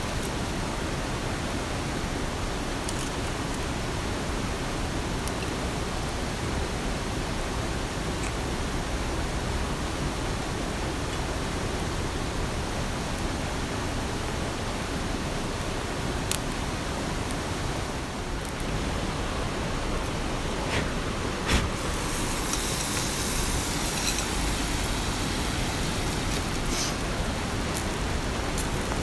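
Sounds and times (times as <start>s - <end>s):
heavy rain hissing: 16.8s - 29.0s.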